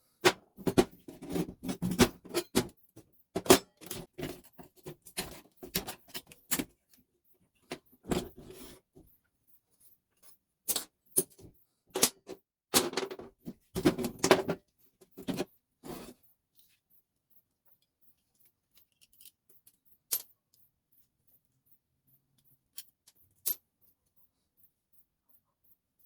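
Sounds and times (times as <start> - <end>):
hand tools and parts clattering: 0.3 - 6.9, 10.2 - 16.2, 18.4 - 20.4.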